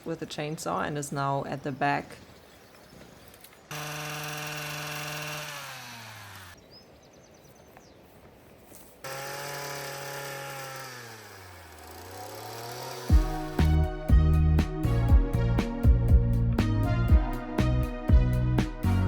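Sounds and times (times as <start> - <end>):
chainsaw cutting wood: 3.7 - 6.6, 9.0 - 13.8.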